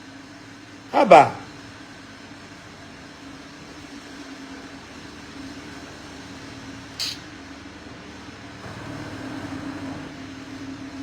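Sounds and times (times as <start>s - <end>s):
short high click: 7.0s - 7.2s.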